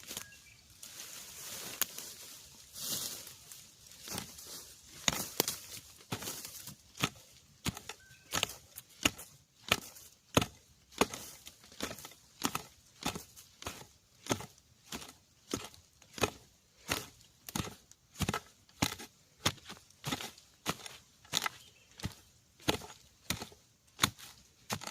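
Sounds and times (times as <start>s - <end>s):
hoe chopping into earth: 5.0s - 24.9s.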